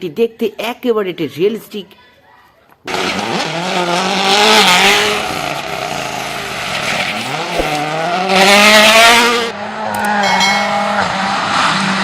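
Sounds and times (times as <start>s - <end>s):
race car engine: 2.9s - 12.0s.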